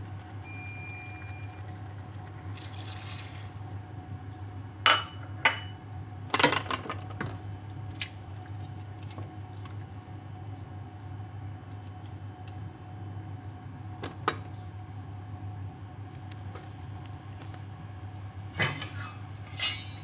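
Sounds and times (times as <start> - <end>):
liquid pouring: 1.2 - 3.9
utensils and dishes clinking: 18.6 - 20.0.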